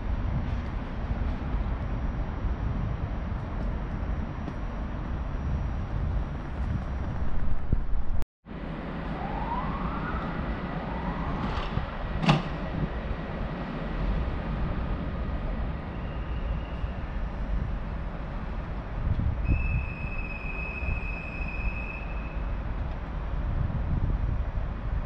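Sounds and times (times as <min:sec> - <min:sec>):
low train rumble: 0:00.0 - 0:25.0
rising whines: 0:04.0 - 0:17.3.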